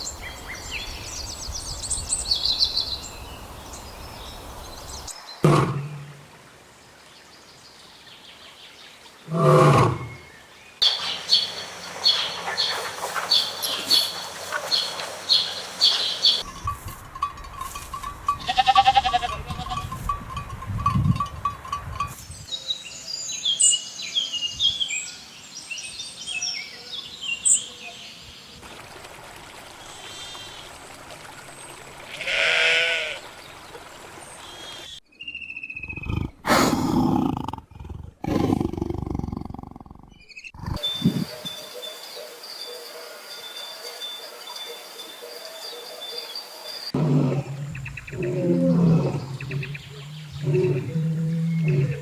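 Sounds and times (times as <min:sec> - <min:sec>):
long wavering bleat: 0:18.5 - 0:19.8, 0:32.1 - 0:33.2
high chirping calls: 0:40.1 - 0:47.0.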